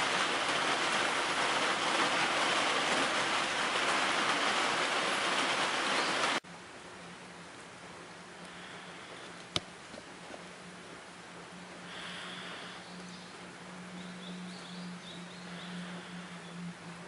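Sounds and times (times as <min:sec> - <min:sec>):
gentle rain hissing: 0:00.0 - 0:17.0.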